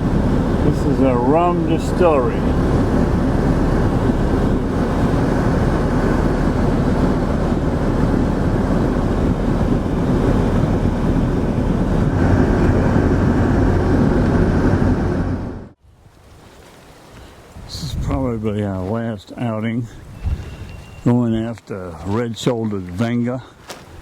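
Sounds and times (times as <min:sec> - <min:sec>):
machinery humming: 0:00.0 - 0:15.8.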